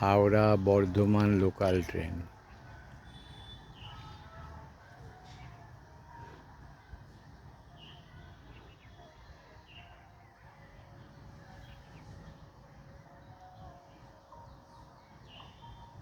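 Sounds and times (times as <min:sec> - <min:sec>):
faint bird chirps: 0:02.6 - 0:05.6, 0:07.6 - 0:16.0.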